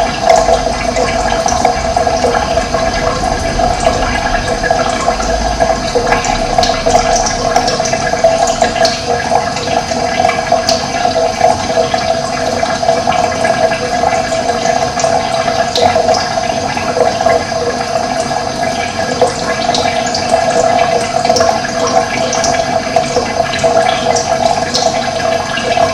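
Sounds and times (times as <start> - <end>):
running water rushing: 0.0 - 25.9.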